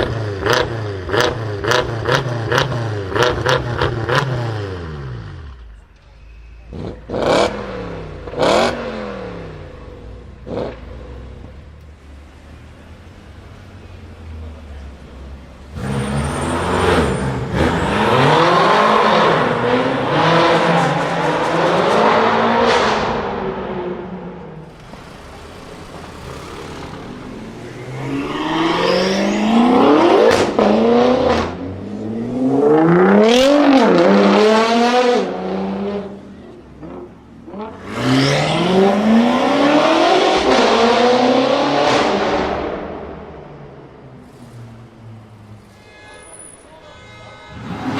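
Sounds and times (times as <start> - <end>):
car engine revving hard: 0.0 - 5.3, 6.8 - 9.5, 15.7 - 24.0, 24.7 - 36.2, 36.8 - 43.1.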